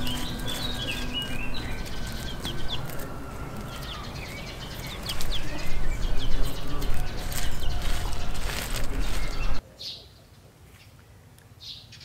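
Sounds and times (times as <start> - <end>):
low rustling: 0.0 - 9.6
high bird chirps: 0.0 - 10.0.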